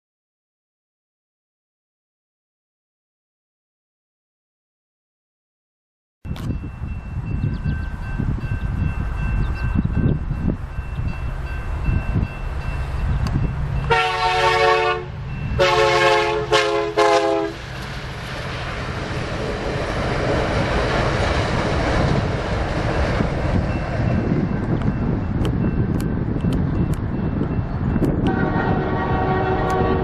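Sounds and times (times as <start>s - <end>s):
crossing bell ringing: 6.3s - 17.6s, 21.9s - 30.0s
train rushing past on rails: 6.3s - 30.0s
locomotive horn: 13.8s - 17.6s, 28.2s - 30.0s.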